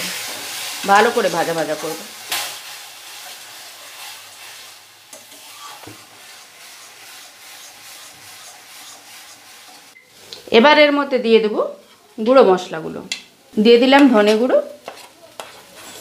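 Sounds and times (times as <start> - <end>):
paste sizzling in hot oil: 0.0 - 10.4
metal spatula scraping pan: 0.4 - 10.0, 14.2 - 16.0.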